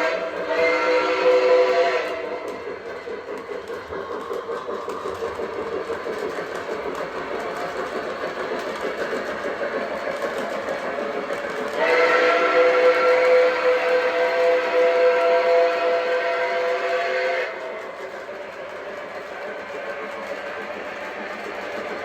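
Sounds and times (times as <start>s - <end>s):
steam whistle blowing: 0.0s - 2.5s, 11.7s - 17.6s
model train steam effects: 0.0s - 22.0s
rumble of rails: 0.0s - 22.0s.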